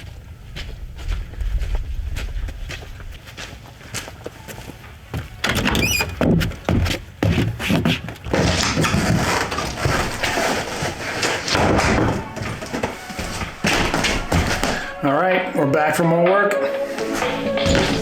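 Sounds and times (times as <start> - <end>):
thuds and knocks: 6.2 - 15.0.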